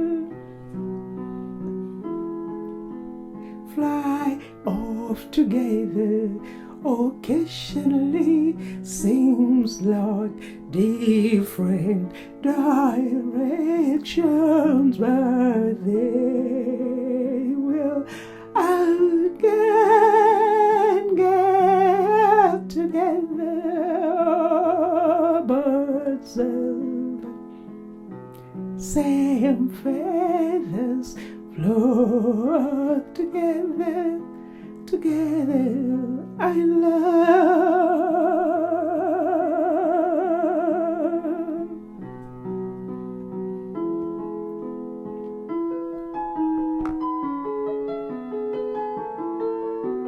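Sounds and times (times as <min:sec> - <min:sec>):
electric keyboard chords: 0:40.5 - 0:50.0.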